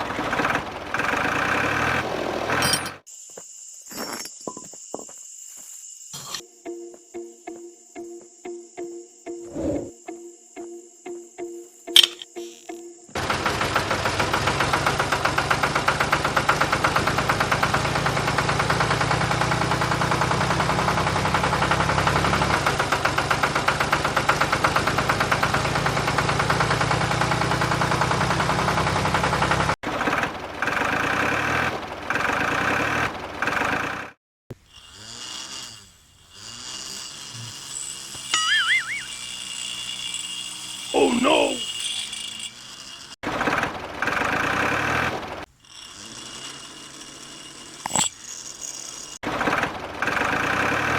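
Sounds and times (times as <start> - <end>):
engine chugging: 0.0 - 3.0, 13.1 - 34.9, 37.0 - 50.9.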